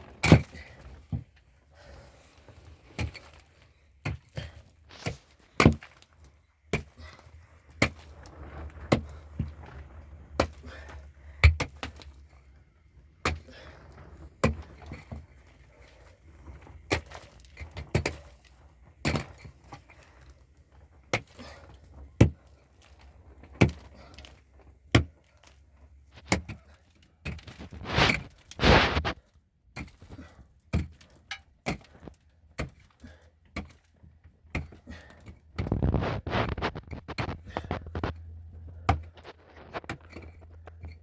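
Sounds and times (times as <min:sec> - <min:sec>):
noisy scraping: 0:07.0 - 0:11.2, 0:27.4 - 0:29.2, 0:35.6 - 0:41.0.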